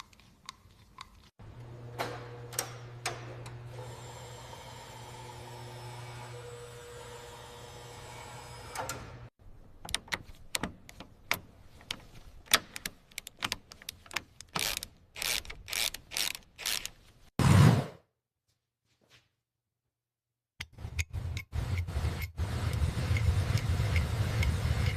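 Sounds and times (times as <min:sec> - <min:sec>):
mechanical hum: 0:01.4 - 0:09.3
sharp clicks and knocks: 0:09.7 - 0:17.0.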